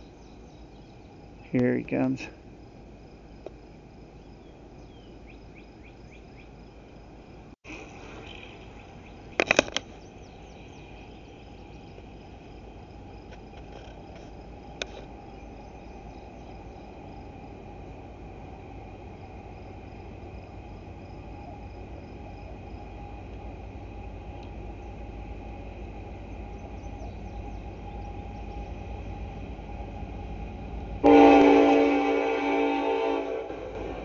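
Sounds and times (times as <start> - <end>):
approaching train rumble: 0.0 - 34.0
insects chirping: 0.0 - 34.0.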